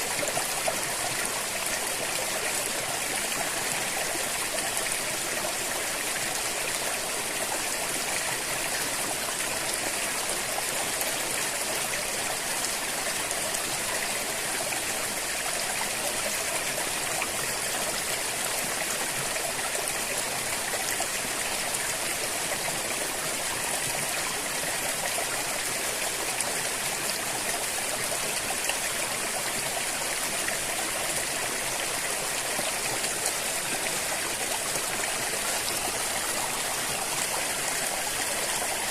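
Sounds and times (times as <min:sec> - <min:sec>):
river flowing: 0:00.0 - 0:38.9.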